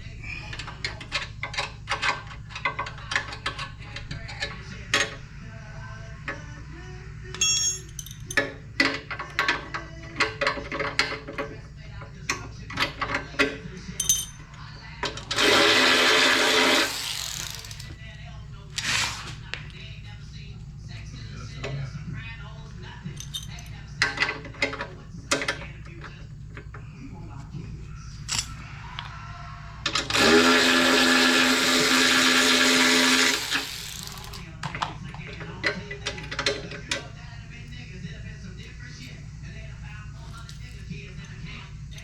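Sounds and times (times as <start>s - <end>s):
metal tools clinking: 7.4s - 8.6s, 14.0s - 14.5s, 23.1s - 24.8s, 28.2s - 28.6s
power tool spinning out bolt: 15.3s - 17.9s, 29.9s - 34.4s.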